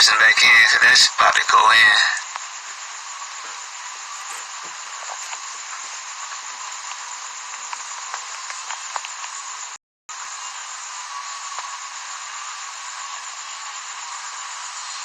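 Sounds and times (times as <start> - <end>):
static hiss: 0.0 - 15.0
faint crackles: 2.2 - 9.8.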